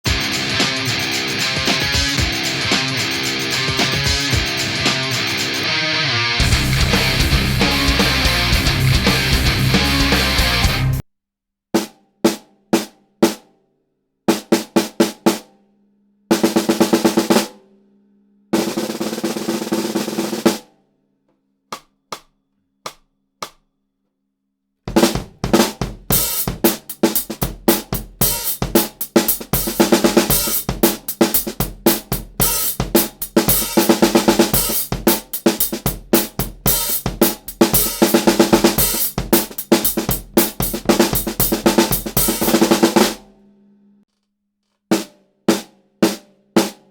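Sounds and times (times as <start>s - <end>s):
snare drum strokes and rolls: 0.0s - 5.7s, 14.3s - 15.5s, 16.3s - 17.6s, 18.6s - 20.7s, 24.9s - 43.4s
drum kit beat: 0.0s - 11.0s, 11.8s - 13.5s, 14.3s - 15.6s, 16.3s - 17.7s, 18.6s - 20.7s, 24.9s - 43.5s, 44.9s - 46.9s.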